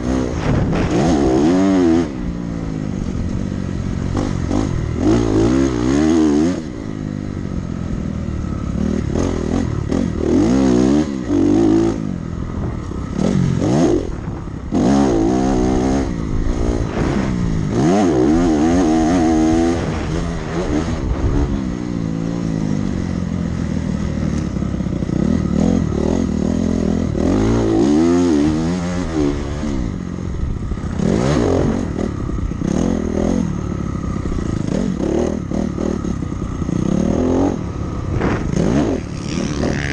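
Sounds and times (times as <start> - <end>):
dirt bike engine accelerating: 0.0 - 39.9.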